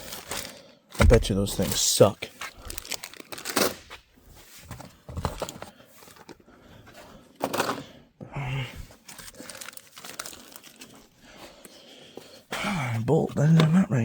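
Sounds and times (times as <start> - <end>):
rustling and crinkling of packaging: 0.0 - 7.8, 8.8 - 12.5
knocks: 1.0 - 1.6.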